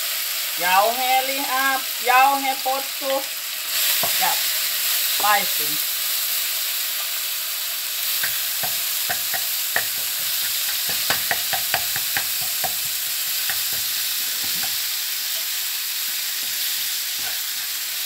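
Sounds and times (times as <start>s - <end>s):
meat sizzling in a wok: 0.0s - 18.0s
spatula tapping and scraping pan: 8.2s - 15.5s, 16.4s - 17.7s.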